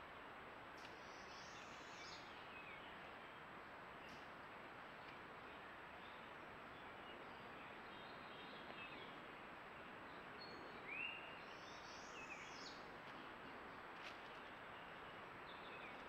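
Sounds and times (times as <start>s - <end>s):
steady hiss: 0.0s - 6.7s.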